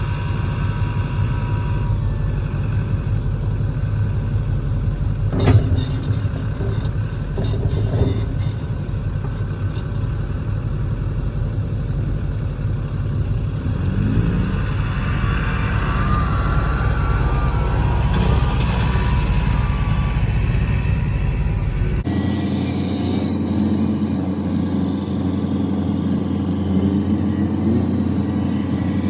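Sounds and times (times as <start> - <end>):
vehicle engine rumbling: 0.0 - 29.0
wavering high squeal: 14.5 - 29.0.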